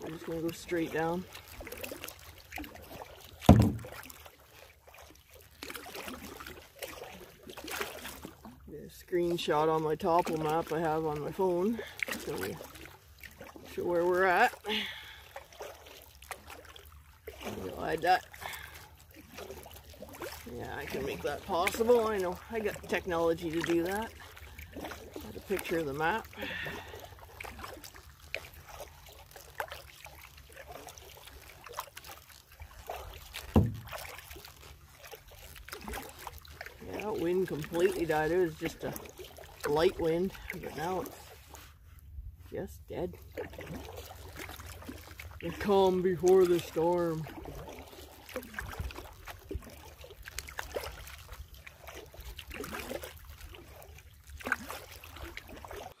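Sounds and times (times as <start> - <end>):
paddle drips and splashes: 0.0 - 56.0
water trickling: 0.0 - 56.0
paddle knock: 3.4 - 4.3, 32.9 - 34.4.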